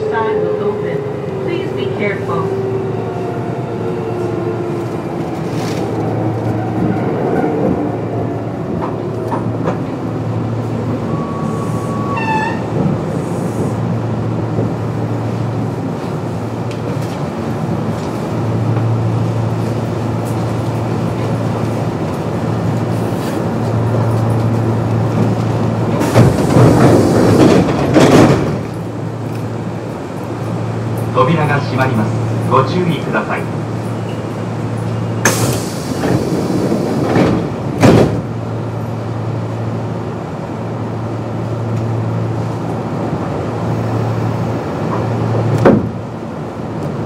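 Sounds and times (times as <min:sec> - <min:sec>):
train wheels rolling: 0:16.0 - 0:31.1, 0:33.8 - 0:38.4.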